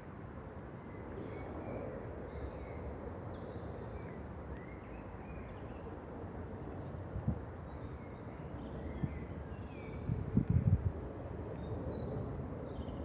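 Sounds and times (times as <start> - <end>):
faint click: 4.5 - 4.7, 10.4 - 10.6.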